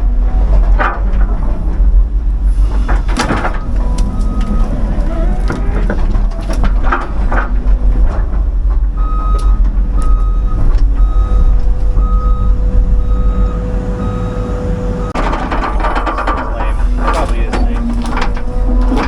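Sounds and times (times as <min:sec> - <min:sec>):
excavator diesel engine running: 0:00.0 - 0:19.0
travel alarm short beeps: 0:09.0 - 0:15.2
sharp knocks: 0:15.2 - 0:19.0.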